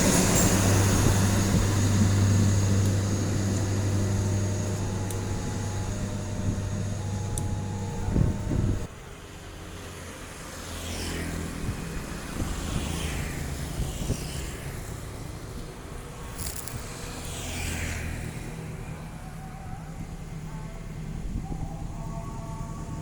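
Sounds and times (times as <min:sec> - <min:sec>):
low engine hum: 0:00.0 - 0:23.0
road vehicles passing by: 0:00.0 - 0:23.0.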